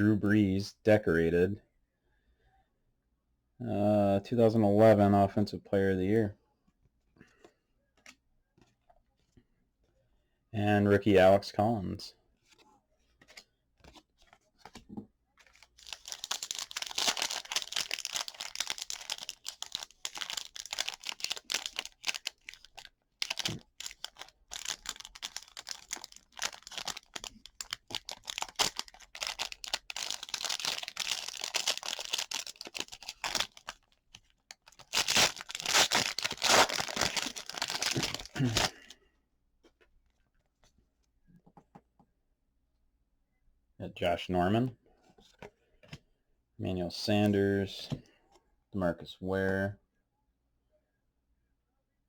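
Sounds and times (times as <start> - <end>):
wrapper tearing and crinkling: 15.5 - 33.9, 34.5 - 38.8.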